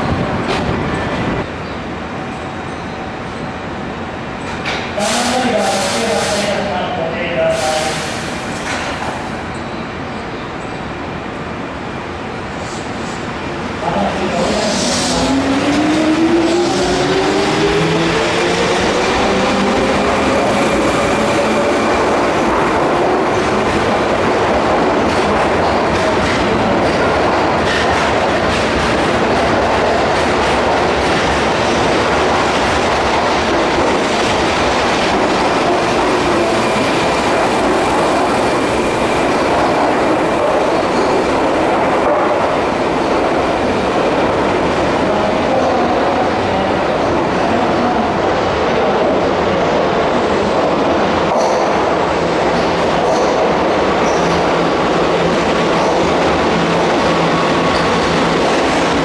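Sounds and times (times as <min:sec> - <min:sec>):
wheels rumbling on rail: 0:00.0 - 0:05.8.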